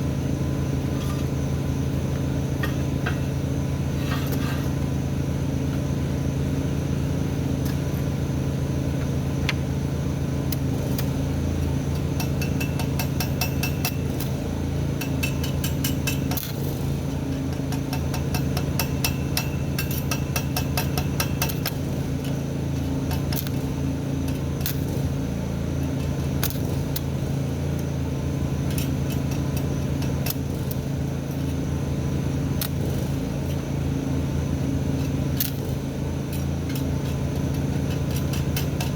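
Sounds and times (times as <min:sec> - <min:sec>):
welding arc crackling: 0:18.2 - 0:27.9.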